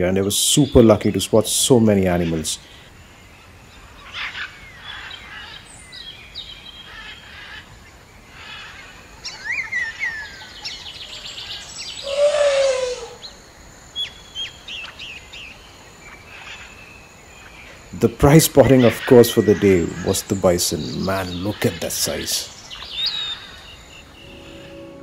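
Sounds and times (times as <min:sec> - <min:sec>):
birds chirping and calling: 0:00.0 - 0:25.0
bird trill: 0:02.1 - 0:25.0
bird call sliding down: 0:12.0 - 0:13.2.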